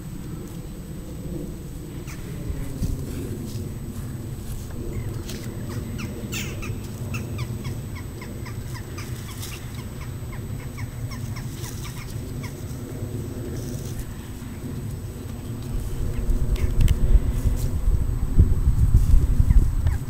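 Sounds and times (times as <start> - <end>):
steady low rumble: 0.0 - 20.0
bird chirping: 4.9 - 12.1.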